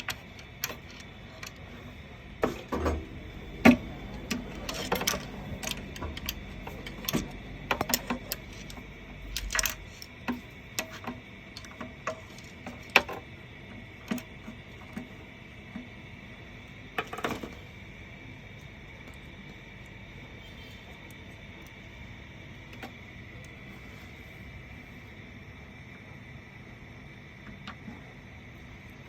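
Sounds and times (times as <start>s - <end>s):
low hum: 1.3s - 10.6s.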